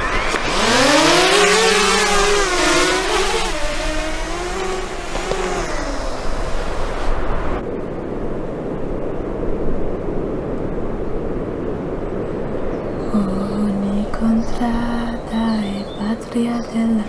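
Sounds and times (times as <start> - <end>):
drone motors whining: 0.0 - 7.6
dull steady rumble: 0.0 - 7.6, 13.0 - 17.0.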